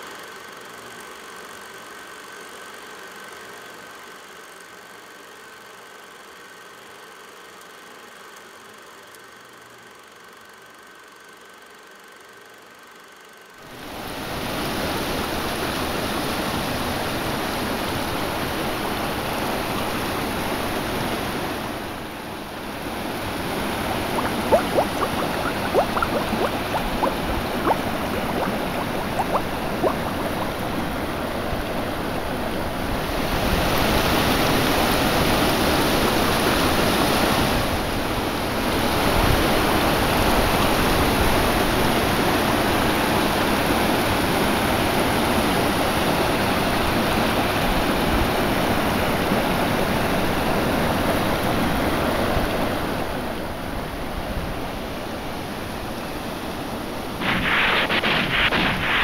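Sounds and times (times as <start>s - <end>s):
rushing water: 23.9s - 31.3s, 57.2s - 59.0s.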